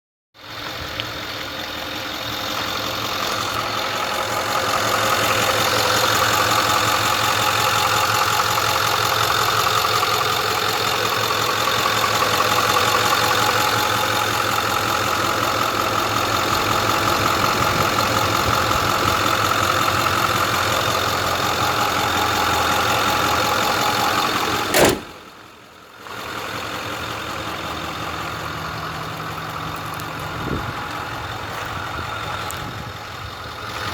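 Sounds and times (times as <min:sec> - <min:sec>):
truck engine idling: 0:00.4 - 0:33.9
sharp click: 0:24.7 - 0:25.2.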